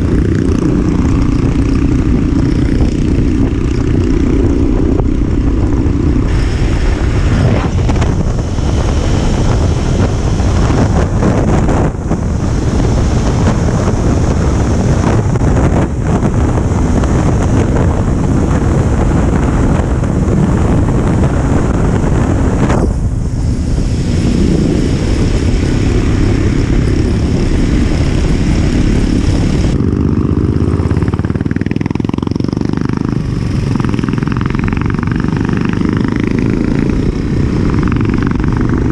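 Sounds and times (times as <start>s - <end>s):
motorcycle engine running at speed: 0.0s - 38.9s
rushing hiss: 6.3s - 10.6s.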